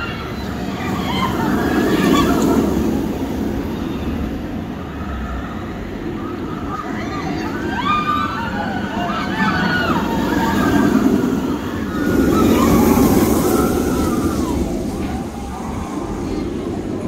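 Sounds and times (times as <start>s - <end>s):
crowd hubbub: 0.0s - 17.0s
voices calling out: 0.0s - 17.0s.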